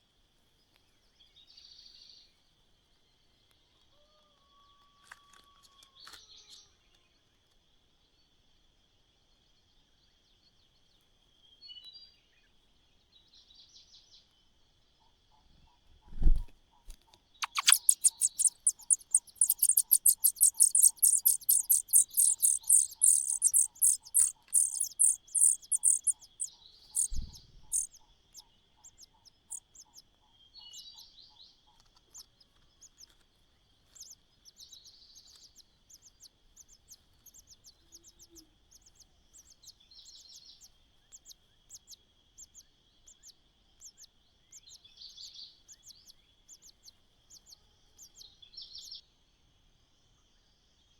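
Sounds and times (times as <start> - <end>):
high insect whine: 17.4 - 26.4
nestlings begging chirps: 17.4 - 28.0.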